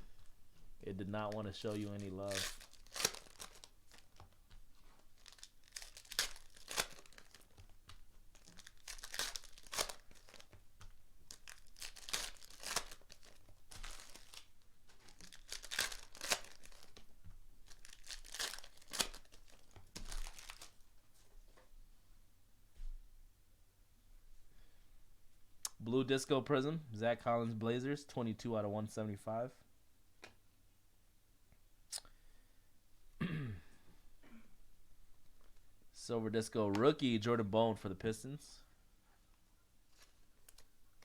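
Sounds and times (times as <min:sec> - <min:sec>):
card wrappers tearing and crinkling: 0:01.2 - 0:07.7, 0:08.3 - 0:10.6, 0:11.3 - 0:20.8, 0:39.9 - 0:41.0.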